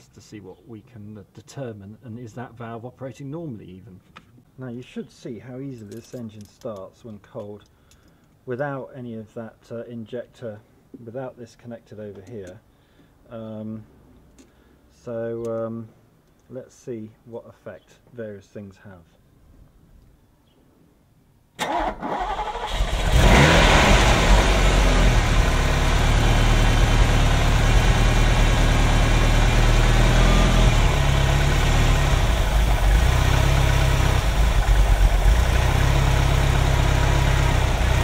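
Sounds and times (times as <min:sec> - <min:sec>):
car engine idling fast: 0:23.3 - 0:38.0.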